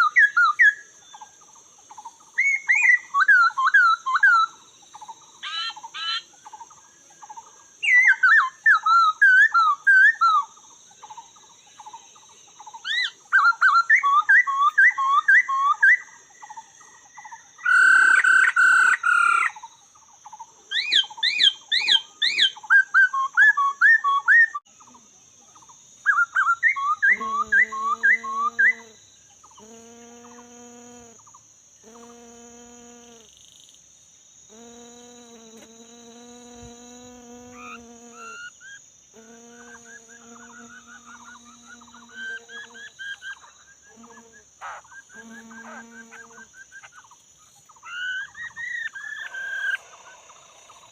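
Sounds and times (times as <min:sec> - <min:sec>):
bird whistling song: 0:00.0 - 0:01.3, 0:02.3 - 0:06.7, 0:07.8 - 0:10.5, 0:12.6 - 0:19.6, 0:20.7 - 0:24.7, 0:26.0 - 0:28.9, 0:44.6 - 0:49.8
high insect-like whine: 0:00.0 - 0:50.9.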